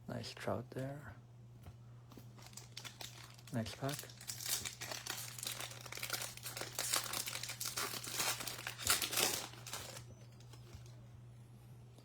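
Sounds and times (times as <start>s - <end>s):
foil wrapper crinkling: 2.2s - 11.0s.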